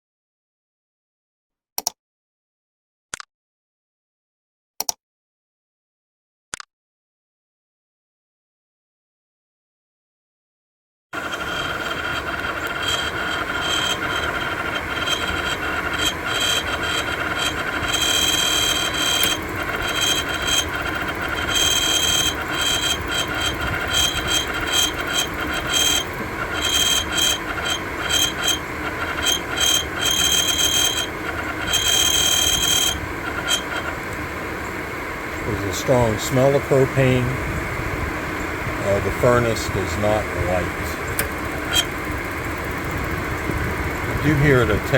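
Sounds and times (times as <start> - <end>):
high-pitched squeal: 11.2 - 37.4, 38.4 - 43.0
furnace blower motor whirring: 11.2 - 44.9.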